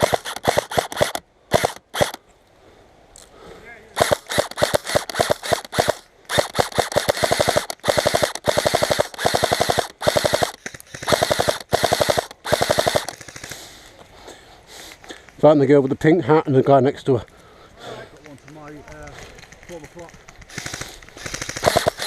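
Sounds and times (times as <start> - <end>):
airsoft rifle full-auto bursts: 0.0 - 2.2, 4.0 - 13.8, 19.4 - 22.0
airsoft rifle shots: 0.0 - 2.2, 4.0 - 13.6, 19.4 - 22.0.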